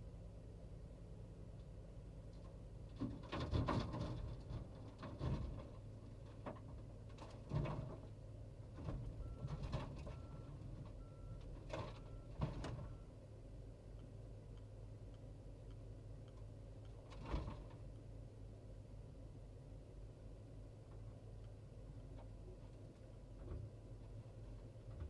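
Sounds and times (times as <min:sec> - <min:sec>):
reversing alarm beeps: 0:09.2 - 0:13.1.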